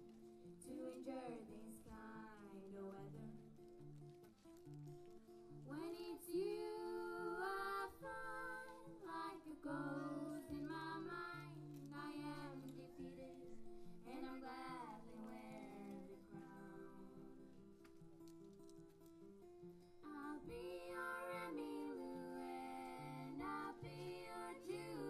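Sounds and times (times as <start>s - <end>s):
woman singing: 0.6s - 3.6s, 5.6s - 17.7s, 20.0s - 25.0s.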